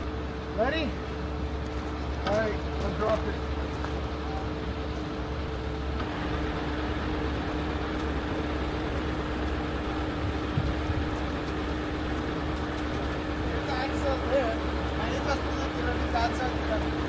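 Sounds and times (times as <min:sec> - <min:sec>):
truck diesel engine whining: 0:00.0 - 0:17.0.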